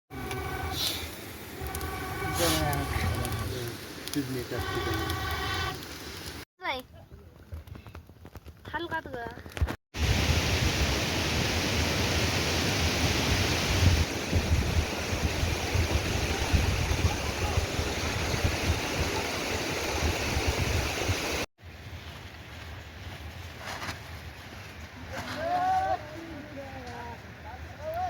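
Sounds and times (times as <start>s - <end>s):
water rushing loudly: 0.1s - 6.4s, 10.0s - 21.5s.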